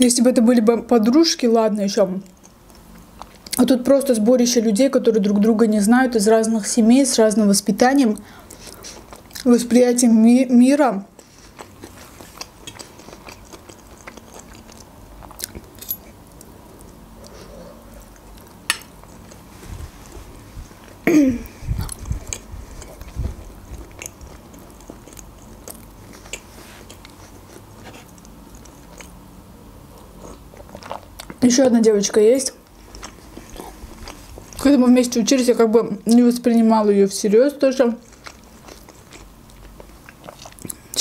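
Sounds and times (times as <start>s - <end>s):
chewing and biting: 11.2s - 19.5s, 21.6s - 29.2s, 30.0s - 31.4s, 38.0s - 41.0s.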